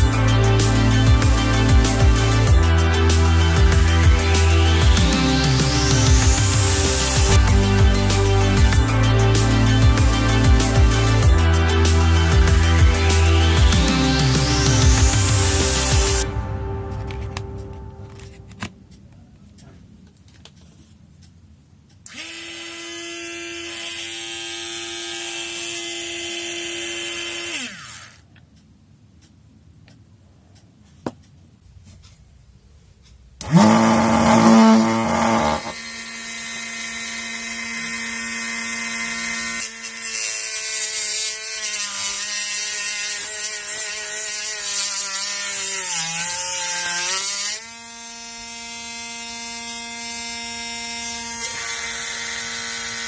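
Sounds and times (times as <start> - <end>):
small electric motor whining: 22.1 - 28.2, 33.4 - 53.0.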